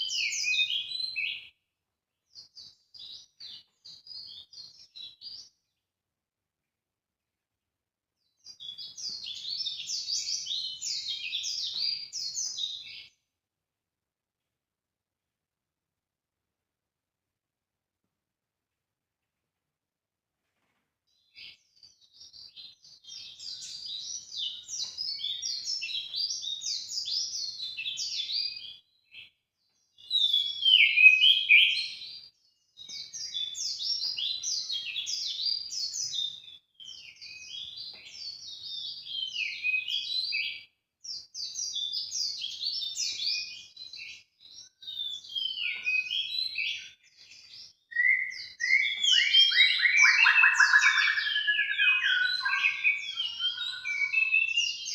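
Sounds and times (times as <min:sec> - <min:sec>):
songbird twittering chirps: 0:00.0 - 0:01.6, 0:08.2 - 0:13.2, 0:21.1 - 0:54.9.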